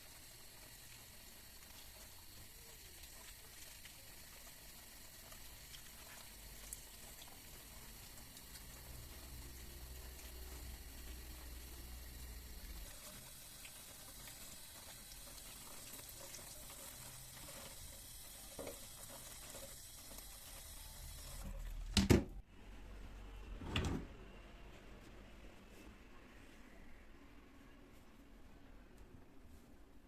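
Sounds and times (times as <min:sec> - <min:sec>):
tap water running into sink: 0:00.0 - 0:21.5.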